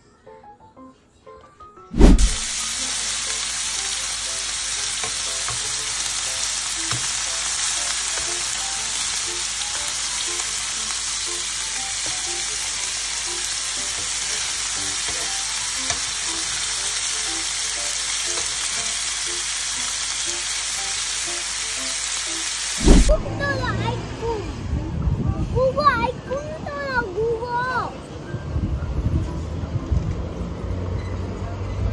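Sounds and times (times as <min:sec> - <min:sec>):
meat frying in a pan: 0:02.0 - 0:23.2
thump: 0:22.8 - 0:23.2.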